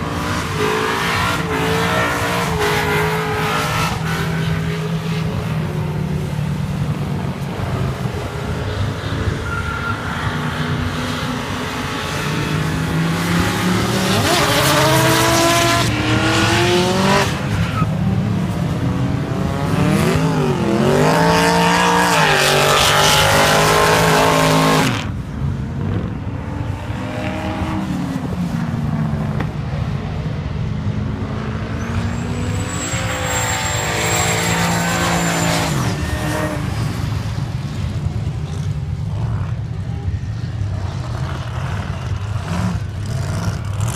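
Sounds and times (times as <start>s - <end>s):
race car engine revving: 10.6s - 17.8s, 18.7s - 25.1s.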